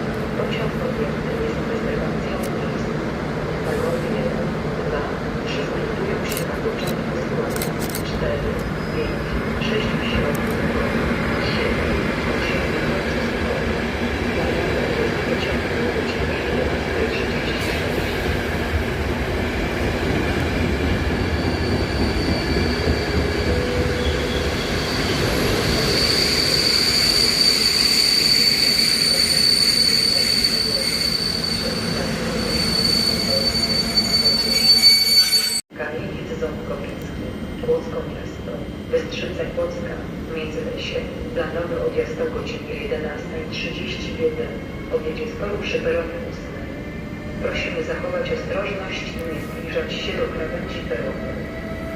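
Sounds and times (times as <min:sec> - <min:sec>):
train rumbling past: 0:08.0 - 0:38.9
wheel squeal: 0:23.8 - 0:35.6.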